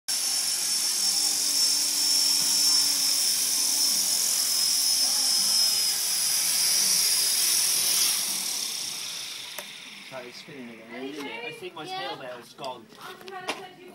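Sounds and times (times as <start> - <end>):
model helicopter motor whine: 0.1 - 11.6.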